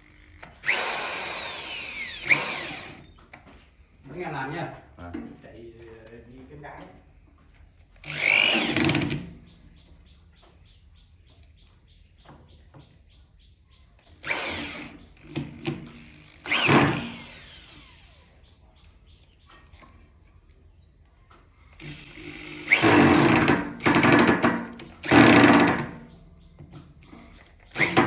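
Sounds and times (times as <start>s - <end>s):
power tool running: 0.5s - 3.1s, 8.0s - 9.3s, 14.2s - 18.3s, 21.8s - 26.0s, 27.7s - 28.0s.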